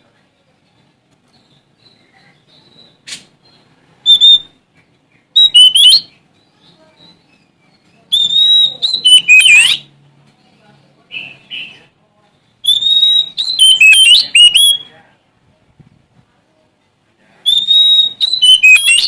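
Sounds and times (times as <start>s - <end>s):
bird singing sliding whistles: 1.5s - 4.5s, 5.4s - 6.1s, 8.1s - 9.8s, 12.6s - 14.9s, 17.5s - 19.0s.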